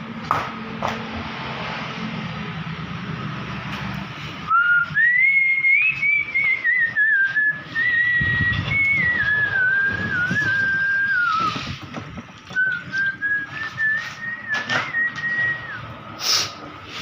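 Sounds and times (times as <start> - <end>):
person whistling a tune: 4.5 - 11.8, 12.5 - 15.9.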